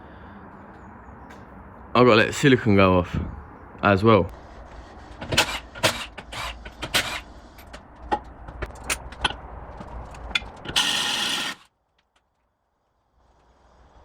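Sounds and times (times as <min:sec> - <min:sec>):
loud rasping burst: 0:04.3 - 0:08.0, 0:10.4 - 0:11.7
metal hand tools clicking and knocking: 0:05.2 - 0:10.9.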